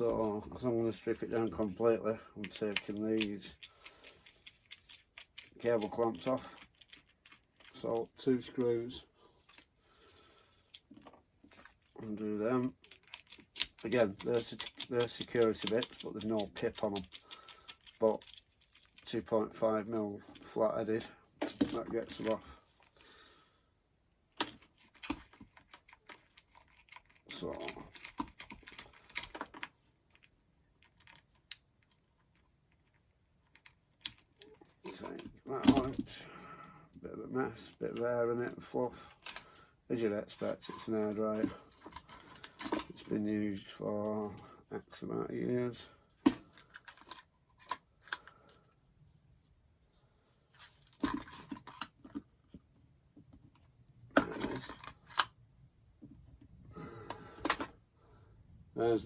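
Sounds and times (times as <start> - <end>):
small plastic parts clicking: 2.4 - 7.9, 12.7 - 19.1, 24.3 - 36.1, 54.2 - 55.4
plastic parts clattering: 12.7 - 19.1, 19.9 - 22.9, 24.3 - 36.3, 39.0 - 39.6, 40.3 - 43.1, 46.2 - 48.5, 50.6 - 52.6, 53.5 - 55.4, 57.0 - 57.8.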